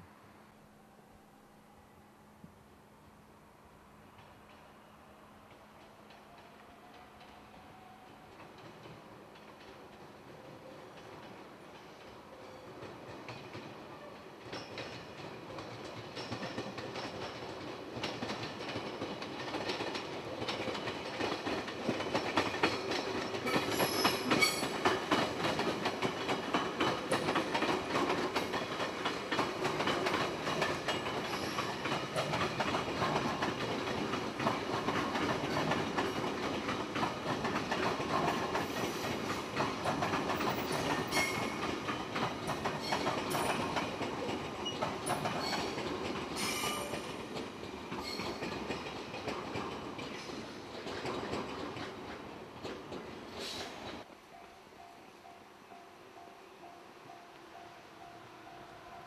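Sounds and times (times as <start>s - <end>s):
high train squeal: 5.8s - 8.8s, 11.7s - 17.4s, 22.4s - 25.6s, 30.1s - 33.4s, 38.2s - 49.1s, 53.1s - 59.0s
train wheels clicking over rail joints: 8.3s - 54.1s.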